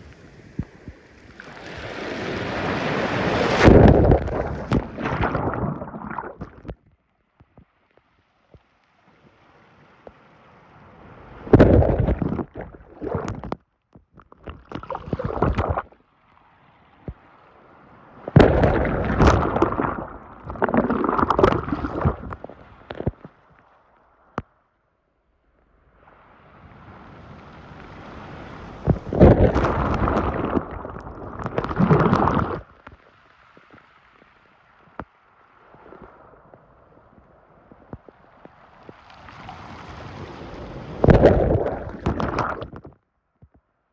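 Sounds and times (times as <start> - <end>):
sea waves crashing on shore: 0.0 - 6.7, 9.2 - 13.5, 16.6 - 23.2, 26.0 - 33.4, 38.3 - 42.7.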